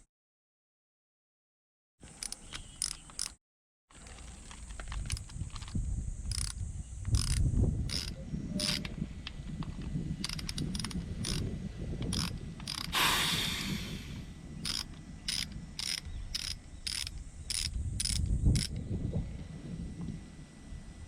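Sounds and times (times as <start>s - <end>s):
ratchet wrench clicking: 2.1s - 3.4s, 4.9s - 8.9s, 10.2s - 18.8s
rush of hiss: 12.9s - 14.4s.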